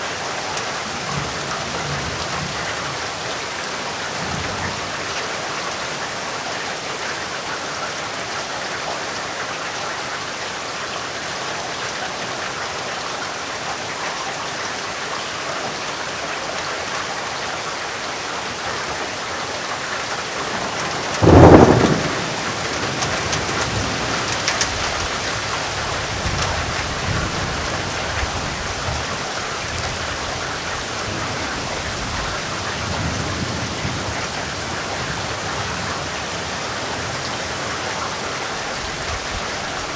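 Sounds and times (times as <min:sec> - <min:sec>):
heavy rain falling: 0:00.0 - 0:39.9
thunderclap and rumbling thunder: 0:20.4 - 0:29.1.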